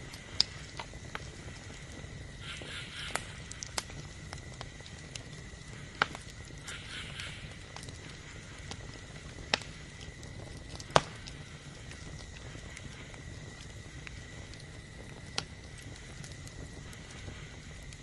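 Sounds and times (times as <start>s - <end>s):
campfire crackling: 0.0s - 18.0s
sharp wood pops: 10.8s - 11.2s.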